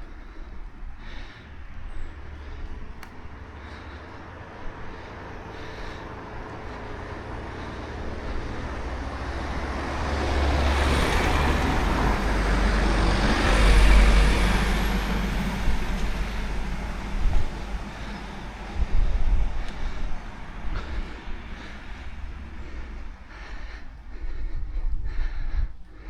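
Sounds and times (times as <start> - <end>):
low rumble: 0.0 - 26.0
vehicle passing on road: 0.0 - 26.0.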